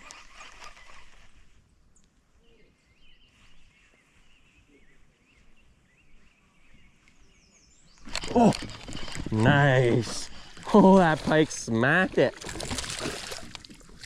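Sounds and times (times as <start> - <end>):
bird song warbling chirps: 1.9 - 8.7.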